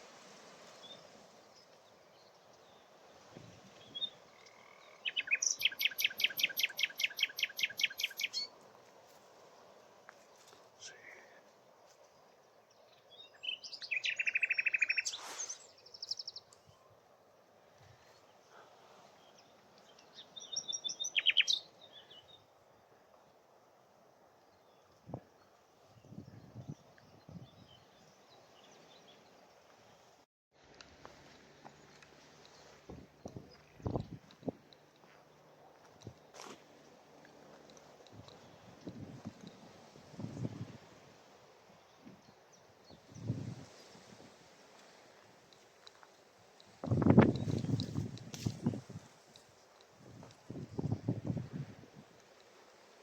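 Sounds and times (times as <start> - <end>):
wind hiss: 0.0 - 11.9, 13.3 - 16.8, 37.8 - 53.0
nightingale singing: 3.8 - 8.6, 13.0 - 16.9, 19.2 - 22.4
high bird chirp: 3.9 - 8.5, 13.4 - 16.3, 20.4 - 21.7.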